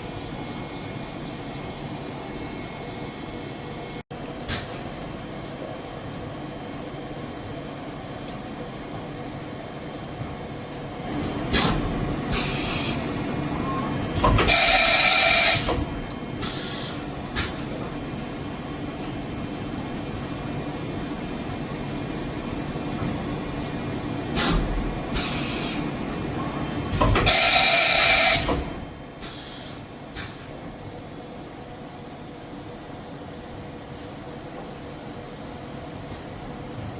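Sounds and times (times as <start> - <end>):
machine humming: 0.0 - 10.1
loud noisy machine bursts: 14.3 - 15.8, 27.2 - 28.6.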